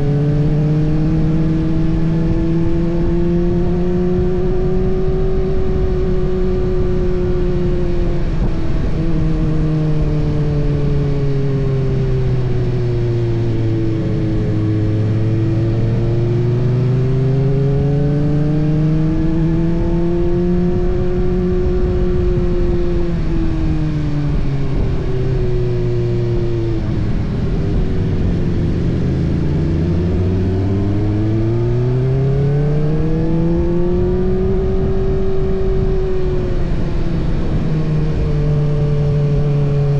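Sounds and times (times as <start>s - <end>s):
motorcycle engine revving: 0.0s - 39.9s
steady noisy rush: 20.5s - 39.9s.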